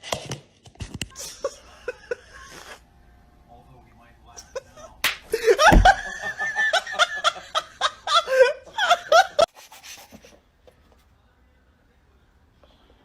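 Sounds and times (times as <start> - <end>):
person laughing hard: 5.4 - 6.4
low thump: 5.6 - 6.2.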